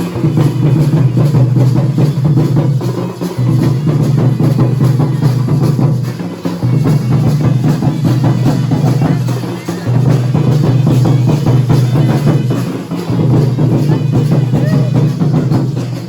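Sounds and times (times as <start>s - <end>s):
fast drumming with deep boom: 0.0s - 16.0s.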